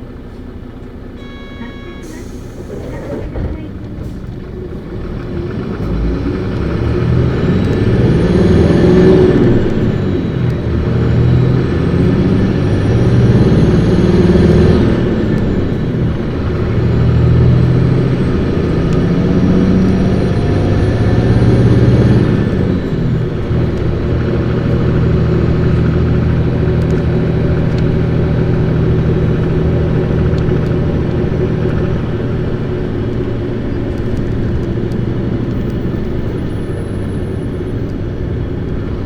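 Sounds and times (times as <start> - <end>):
bus diesel engine accelerating: 0.0 - 39.0.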